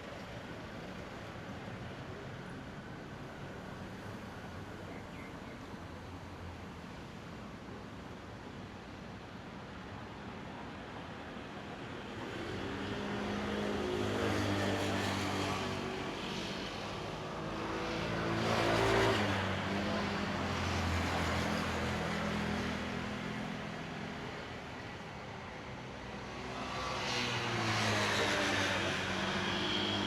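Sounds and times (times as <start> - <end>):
vehicles passing on road: 0.0 - 30.0.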